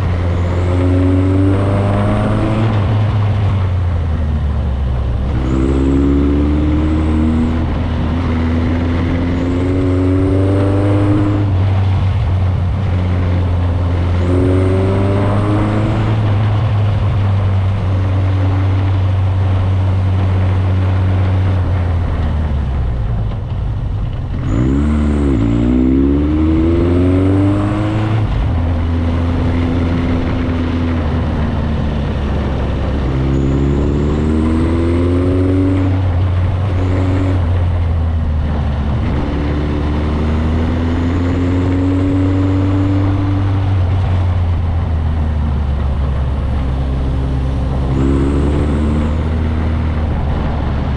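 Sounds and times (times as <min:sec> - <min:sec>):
motorcycle engine accelerating: 0:00.0 - 0:50.9
wind and road noise: 0:00.0 - 0:50.9.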